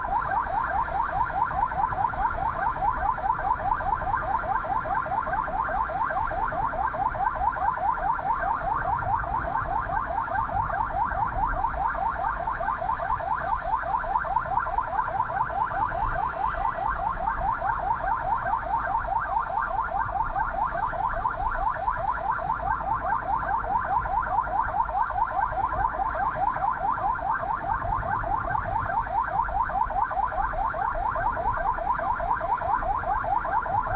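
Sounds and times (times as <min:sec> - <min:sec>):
ambulance siren yelping: 0:00.0 - 0:33.9.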